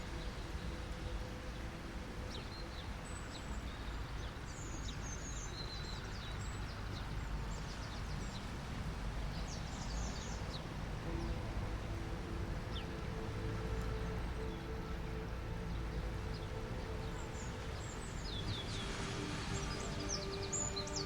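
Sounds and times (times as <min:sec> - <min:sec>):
small birds chirping: 0:09.3 - 0:21.0
ocean surf: 0:10.8 - 0:21.0.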